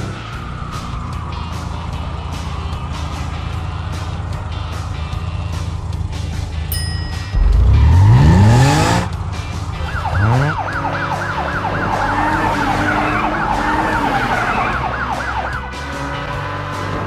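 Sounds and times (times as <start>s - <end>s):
background music: 0.0s - 17.0s
cartoon engine revving: 7.4s - 9.2s
warbling siren: 9.8s - 15.6s.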